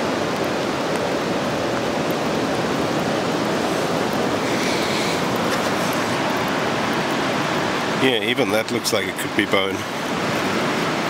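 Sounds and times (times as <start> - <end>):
rain: 0.0 - 11.0
surf on rocky beach: 0.0 - 11.0.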